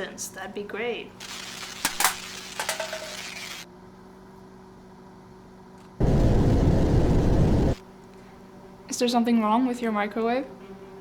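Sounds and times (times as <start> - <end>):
microwave oven humming: 3.6 - 7.8.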